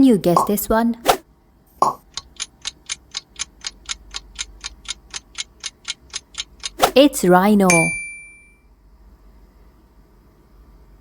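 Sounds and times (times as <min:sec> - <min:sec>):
clock ticking: 0:01.8 - 0:08.0.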